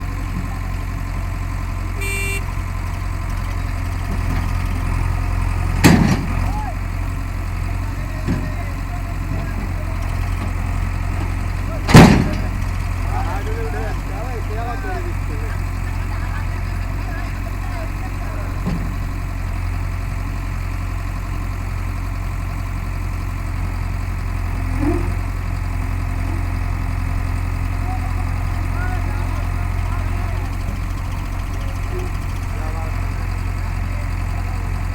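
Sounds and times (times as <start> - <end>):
heavy engine running: 0.0 - 34.9
short horn toot: 2.0 - 2.5.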